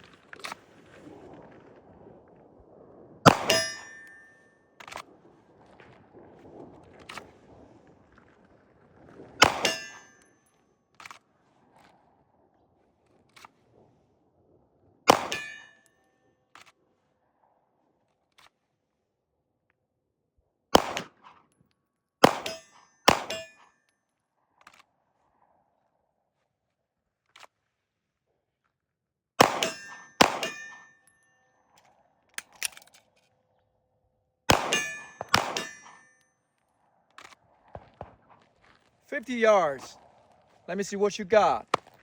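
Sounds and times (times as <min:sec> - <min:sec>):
pistol shots: 0:03.3 - 0:04.1, 0:09.4 - 0:10.0, 0:15.1 - 0:15.6, 0:20.8 - 0:21.2, 0:22.2 - 0:23.6, 0:29.4 - 0:30.8, 0:34.5 - 0:36.0
metallic ring of steel target: 0:03.3 - 0:04.3, 0:09.4 - 0:10.2, 0:15.2 - 0:15.8, 0:22.3 - 0:23.7, 0:29.5 - 0:31.2, 0:34.6 - 0:36.2.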